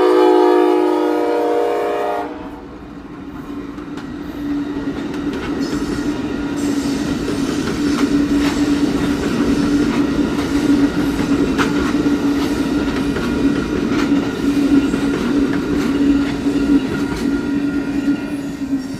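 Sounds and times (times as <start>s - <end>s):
train wheels clicking over rail joints: 3.2s - 18.9s.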